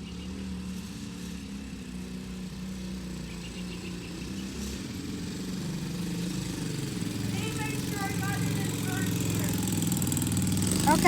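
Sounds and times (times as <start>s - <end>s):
dirt bike engine idling: 6.6s - 11.0s.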